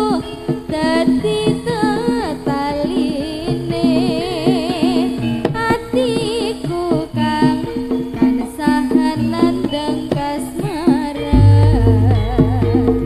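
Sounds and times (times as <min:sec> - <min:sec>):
hand drum strokes: 0:00.0 - 0:13.0
wavering melody: 0:11.3 - 0:13.0.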